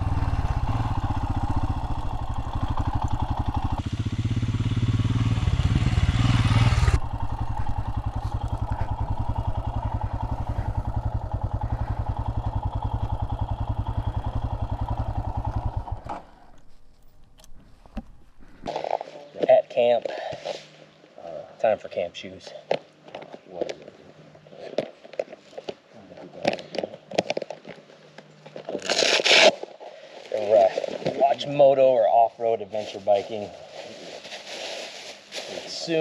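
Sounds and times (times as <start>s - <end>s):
motorcycle engine idling: 0.0s - 18.3s.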